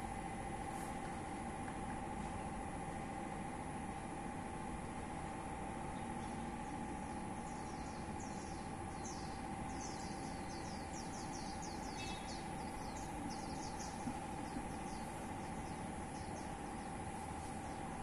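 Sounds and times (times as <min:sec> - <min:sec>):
steady hum: 0:00.0 - 0:18.0
bird chirping: 0:07.4 - 0:16.9.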